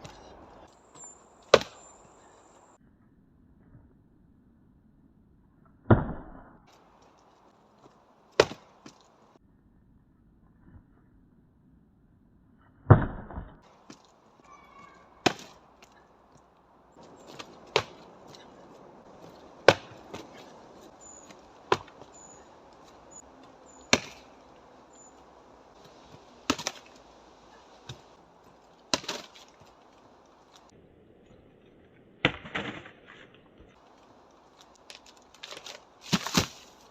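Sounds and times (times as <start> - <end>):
strikes knocking on tree trunk: 19.2 - 20.5, 21.3 - 22.1, 23.9 - 24.3.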